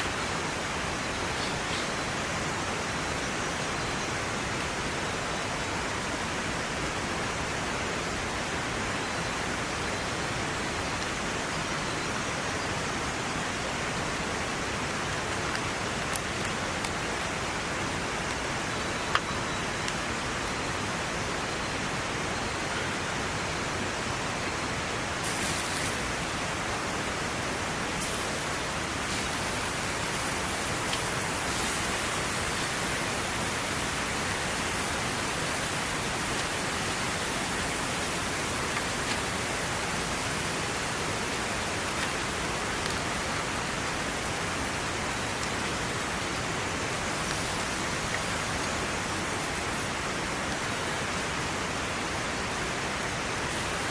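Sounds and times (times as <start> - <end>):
water hissing: 25.2 - 43.8, 46.9 - 51.2.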